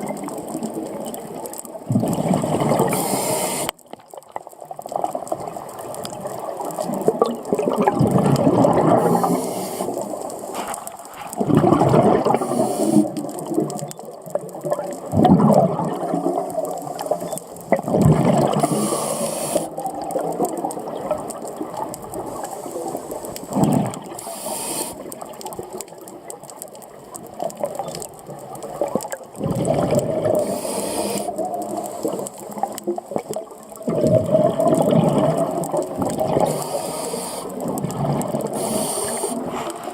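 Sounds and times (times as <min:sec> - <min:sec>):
underwater bubbles gurgling: 0:00.0 - 0:39.9
regulator hissing inhalations: 0:02.9 - 0:03.7, 0:09.0 - 0:10.6, 0:12.4 - 0:13.2, 0:18.6 - 0:19.7, 0:24.2 - 0:25.1, 0:30.4 - 0:32.3, 0:36.5 - 0:37.6, 0:38.5 - 0:39.7.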